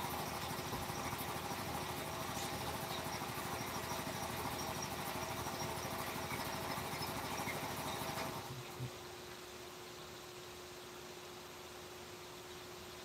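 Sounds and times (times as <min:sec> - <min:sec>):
small motor running: 0:00.0 - 0:08.8.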